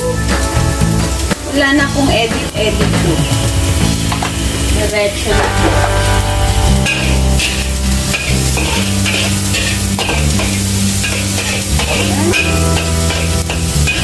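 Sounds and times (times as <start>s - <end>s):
background music with bass line: 1.8s - 11.0s
onions sizzling in a pan: 5.4s - 14.0s.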